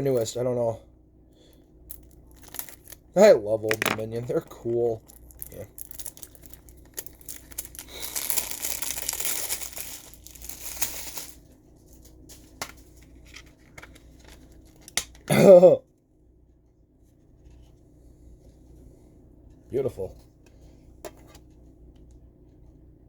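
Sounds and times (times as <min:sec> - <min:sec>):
plastic wrapping tearing and crinkling: 0:05.1 - 0:11.4.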